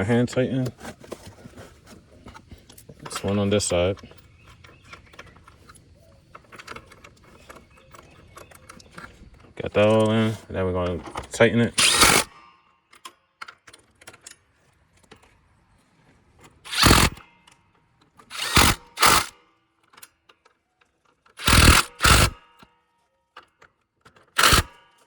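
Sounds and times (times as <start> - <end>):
small clicks and handling knocks: 0.0 - 25.0
cordless power tool bursts: 11.6 - 12.6, 16.7 - 17.3, 18.2 - 19.4, 21.4 - 22.6, 24.3 - 25.0.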